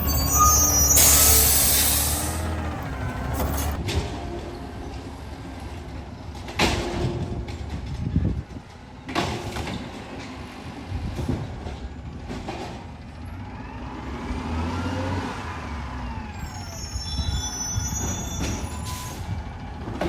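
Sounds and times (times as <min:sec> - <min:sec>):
garbage truck engine rumbling: 0:00.0 - 0:14.0.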